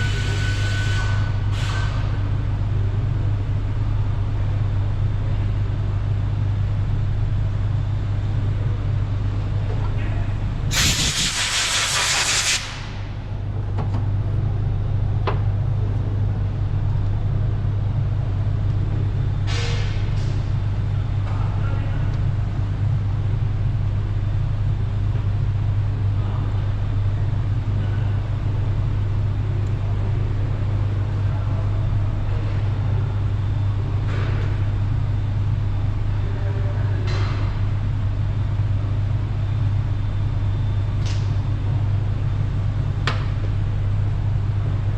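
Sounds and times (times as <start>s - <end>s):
low machine hum: 0.0s - 44.9s
hissing air burst: 10.7s - 13.0s.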